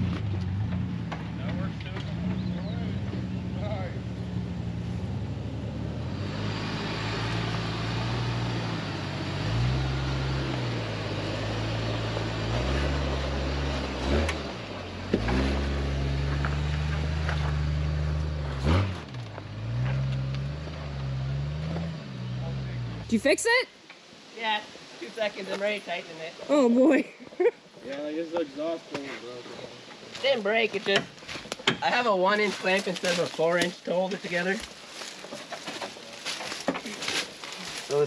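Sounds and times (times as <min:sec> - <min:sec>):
off-road vehicle engine revving: 0:00.0 - 0:23.3.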